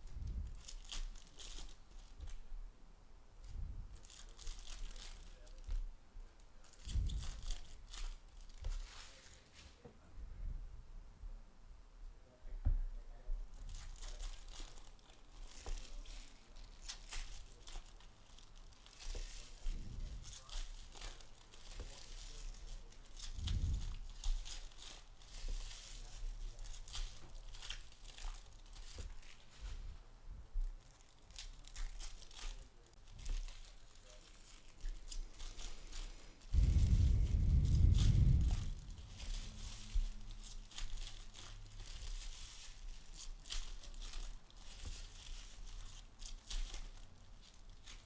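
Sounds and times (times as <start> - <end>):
wrappers tearing and crinkling: 0.1 - 2.4, 3.9 - 9.6, 13.5 - 29.8, 30.6 - 48.0
cards shuffled in hand: 31.0 - 47.0.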